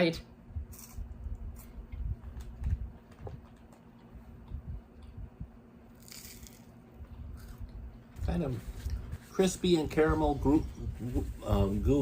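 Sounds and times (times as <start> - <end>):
microphone handling noise: 0.6 - 5.6.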